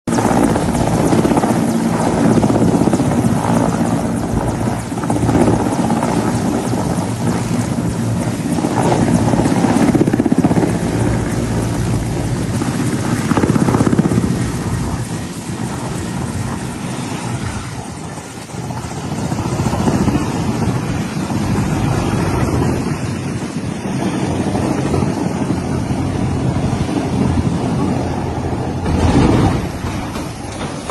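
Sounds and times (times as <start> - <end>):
helicopter engines and rotor: 0.0 - 30.9.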